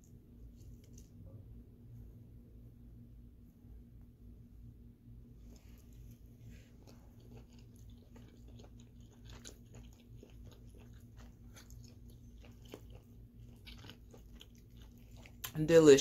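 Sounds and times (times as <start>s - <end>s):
steady low hum: 0.0s - 16.0s
person chewing: 5.5s - 15.6s.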